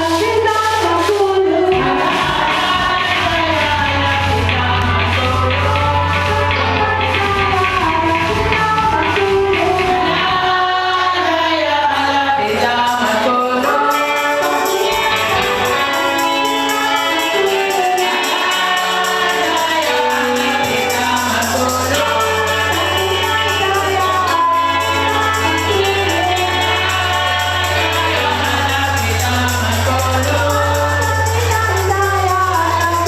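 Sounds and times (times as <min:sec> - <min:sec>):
group singing a hymn in harmony: 0:01.1 - 0:33.0
tambourine beat: 0:12.7 - 0:33.0.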